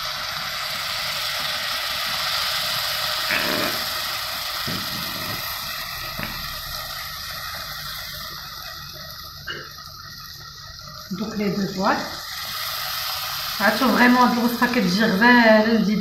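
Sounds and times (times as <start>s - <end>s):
vegetables sizzling in a pot: 0.0s - 16.0s
puree pouring: 2.0s - 9.6s.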